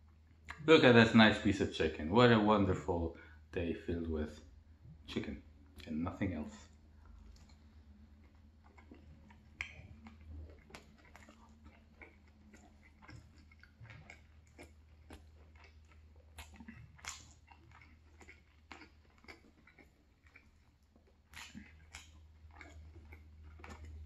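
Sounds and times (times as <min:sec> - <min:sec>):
person chewing food: 0:06.6 - 0:24.0.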